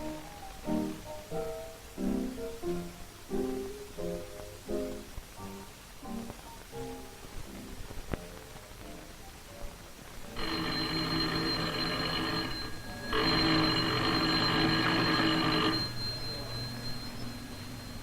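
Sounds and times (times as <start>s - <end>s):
telephone bell ringing: 10.4s - 18.0s.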